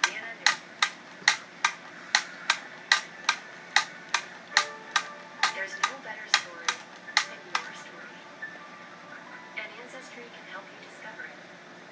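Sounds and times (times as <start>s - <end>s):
wind-up tin toy clicking: 0.0s - 7.7s.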